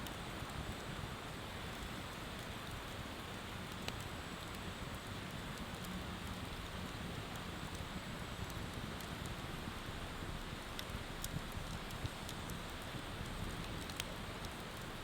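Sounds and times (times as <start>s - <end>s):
bonfire crackling: 0.1s - 15.0s.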